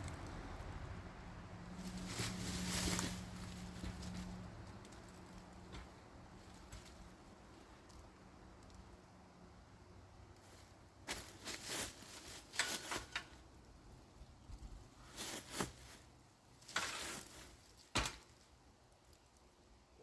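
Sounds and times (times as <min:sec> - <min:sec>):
handling rustles and knocks: 0:01.7 - 0:08.1, 0:10.4 - 0:13.6, 0:14.5 - 0:19.4
footsteps: 0:01.8 - 0:07.1, 0:11.1 - 0:13.2.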